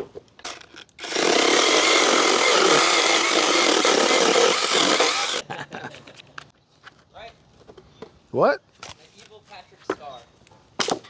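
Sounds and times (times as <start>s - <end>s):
motorised saw cutting wood: 1.0s - 5.4s.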